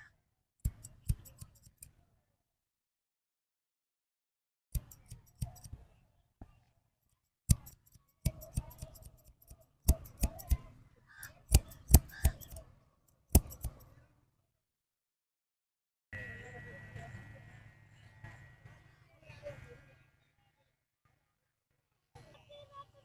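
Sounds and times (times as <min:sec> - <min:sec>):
scissors snipping hair: 0:00.7 - 0:02.0, 0:04.8 - 0:05.8, 0:07.5 - 0:12.6, 0:13.3 - 0:13.9.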